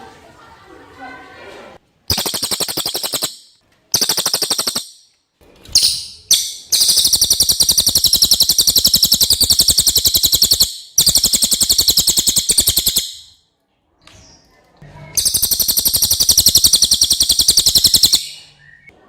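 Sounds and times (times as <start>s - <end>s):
songbird buzzy trills: 2.1s - 5.1s, 5.8s - 13.4s, 15.2s - 18.9s.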